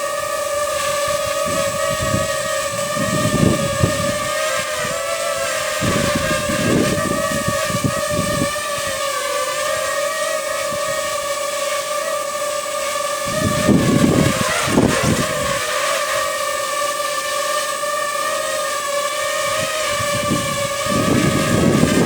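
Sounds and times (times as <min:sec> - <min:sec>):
drone propellers humming: 0:00.0 - 0:22.0
wind buffeting microphone: 0:00.2 - 0:11.4, 0:12.9 - 0:16.4, 0:19.1 - 0:22.0.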